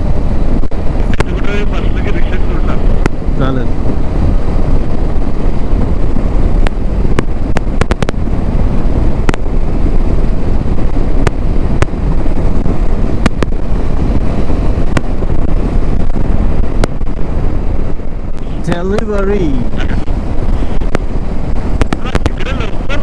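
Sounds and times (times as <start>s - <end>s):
wind rumble on microphone: 0.0s - 23.0s
sharp crackles: 21.8s - 23.0s.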